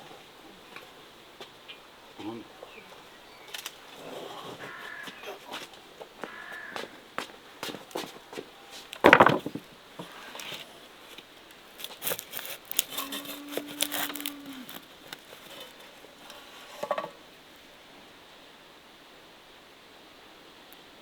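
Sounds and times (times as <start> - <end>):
knocks of objects handled: 9.0 - 10.1.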